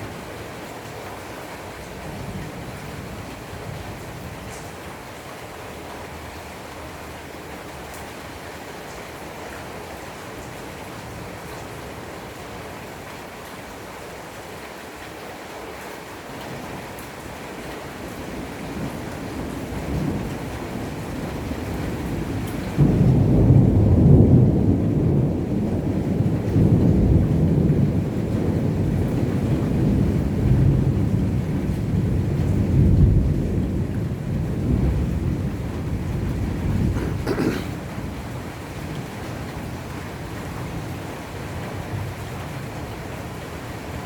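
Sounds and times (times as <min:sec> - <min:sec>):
faint ticks of raindrops: 0:00.0 - 0:44.0
heavy rain downpour: 0:00.0 - 0:44.0
thunder rumbling: 0:18.4 - 0:38.2.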